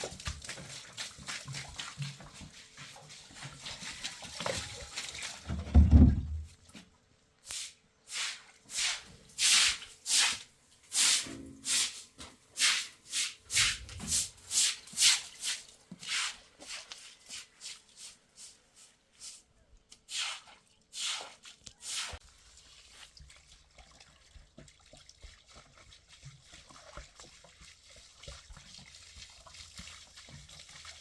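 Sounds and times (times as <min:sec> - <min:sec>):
low thump: 0:05.7 - 0:06.5.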